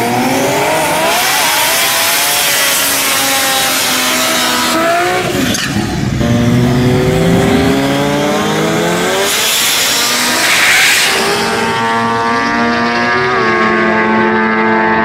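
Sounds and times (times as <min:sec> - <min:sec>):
engine revving hard: 0:00.0 - 0:15.0.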